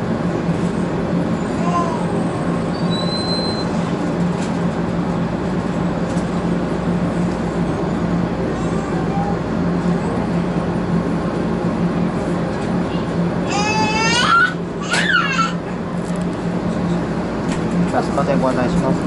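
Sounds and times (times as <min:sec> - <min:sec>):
train running rumble: 0:00.0 - 0:19.0
brief high squeal: 0:02.7 - 0:03.8.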